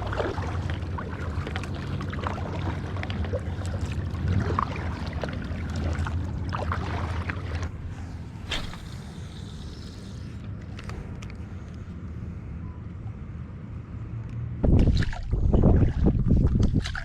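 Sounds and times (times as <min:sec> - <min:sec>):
water splashing: 0:00.0 - 0:10.4
motorboat engines droning: 0:00.0 - 0:14.6.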